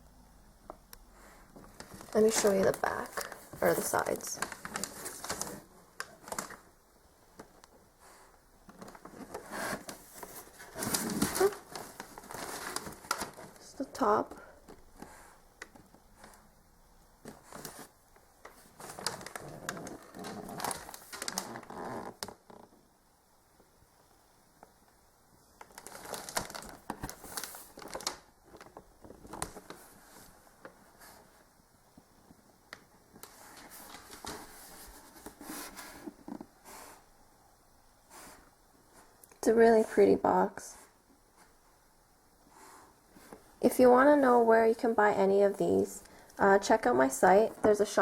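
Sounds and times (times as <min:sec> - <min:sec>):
packaging crinkling and rustling: 0:01.6 - 0:07.8, 0:08.6 - 0:16.4, 0:17.2 - 0:22.8, 0:25.5 - 0:31.4, 0:32.2 - 0:36.6
box rubbing and rustling: 0:08.8 - 0:13.5, 0:33.4 - 0:37.0.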